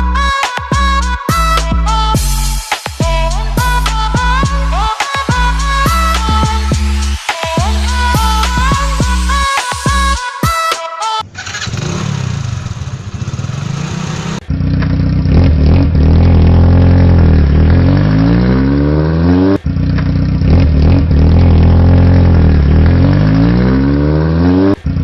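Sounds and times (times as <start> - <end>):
motorcycle engine revving: 0.0 - 10.3, 11.2 - 25.0.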